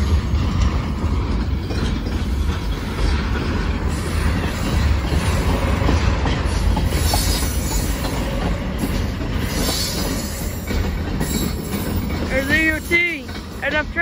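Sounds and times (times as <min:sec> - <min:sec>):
freight train wheels rumbling: 0:00.0 - 0:14.0
wheel squeals: 0:03.8 - 0:13.6.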